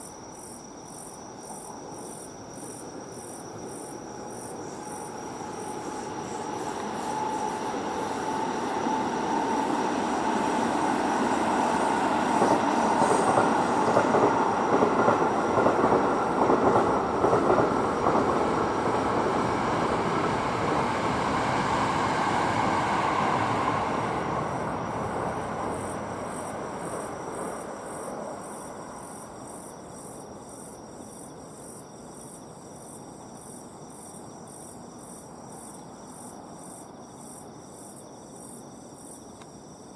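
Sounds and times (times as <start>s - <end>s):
crickets chirping: 0.0s - 39.9s
train passing: 2.7s - 30.7s.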